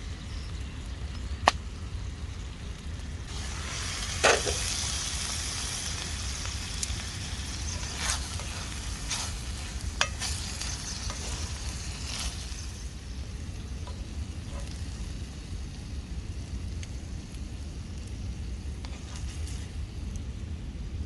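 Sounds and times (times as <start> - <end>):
food sizzling in a pan: 3.3 - 16.0
utensil tapping and scraping pan: 7.7 - 12.3.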